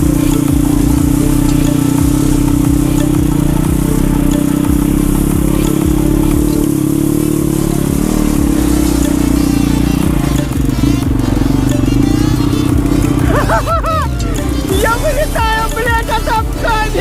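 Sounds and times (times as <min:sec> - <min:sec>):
motorbike engine running: 0:00.0 - 0:17.0.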